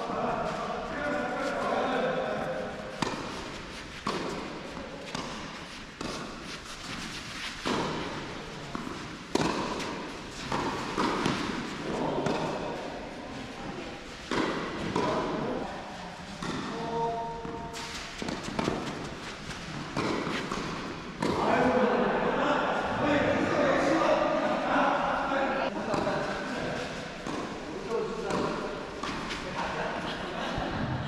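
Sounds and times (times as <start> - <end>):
tennis balls bouncing on court: 2.4 - 12.9, 14.2 - 15.6, 16.4 - 21.6, 25.7 - 29.7
tennis balls struck by rackets: 2.4 - 12.9, 14.2 - 15.5, 16.4 - 21.5, 25.7 - 29.7.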